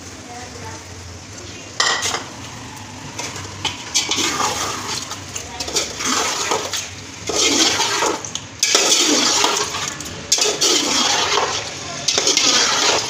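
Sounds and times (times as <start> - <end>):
food sizzling in a pot: 0.0 - 13.0
spoon scraping: 3.2 - 13.0.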